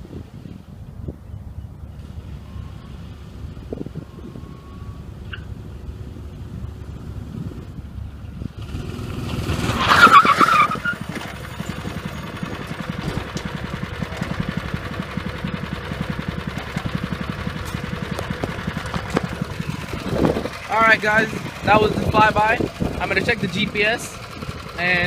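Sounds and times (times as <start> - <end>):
go-kart engine at full throttle: 8.4 - 25.0.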